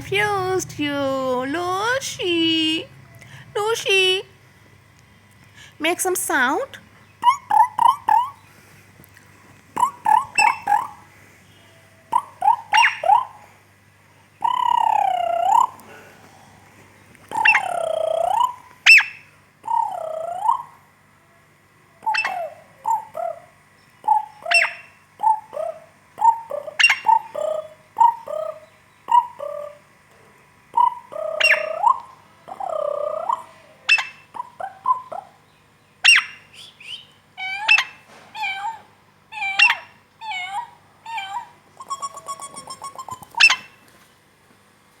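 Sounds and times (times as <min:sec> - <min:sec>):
parrot rattling trill: 0:00.0 - 0:04.3, 0:09.8 - 0:11.0, 0:17.3 - 0:20.7, 0:36.0 - 0:43.9
parrot whistling and chirping: 0:09.8 - 0:11.0, 0:12.2 - 0:13.4, 0:17.3 - 0:20.7, 0:22.1 - 0:23.4, 0:24.0 - 0:29.8, 0:30.8 - 0:35.4, 0:36.0 - 0:38.8, 0:39.4 - 0:43.8.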